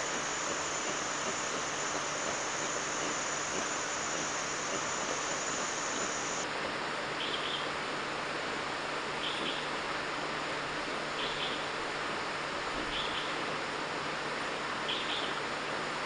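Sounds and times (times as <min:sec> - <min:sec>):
high-pitched insect drone: 0:00.0 - 0:06.4
insect chorus hiss: 0:00.0 - 0:06.4, 0:11.2 - 0:11.7, 0:12.9 - 0:13.4
short insect chirp: 0:00.0 - 0:06.4.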